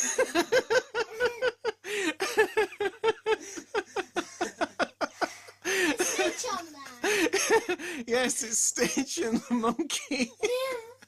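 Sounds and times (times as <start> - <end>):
person laughing hard: 0.0 - 6.3.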